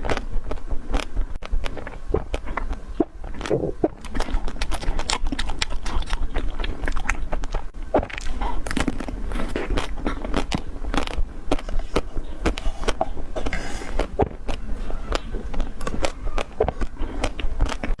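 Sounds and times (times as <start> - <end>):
crunching ice cream shell: 0.0 - 18.0
wet mouth sounds: 0.0 - 18.0.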